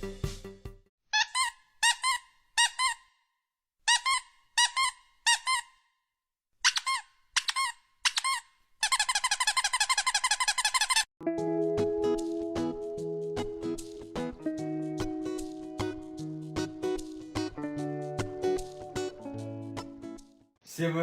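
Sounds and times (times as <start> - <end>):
high-pitched squeaks: 6.6 - 11.1.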